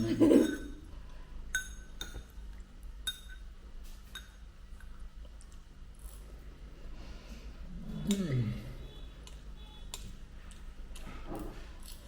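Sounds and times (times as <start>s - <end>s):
tableware clinking: 0.0s - 0.9s, 1.5s - 2.3s, 3.1s - 3.5s.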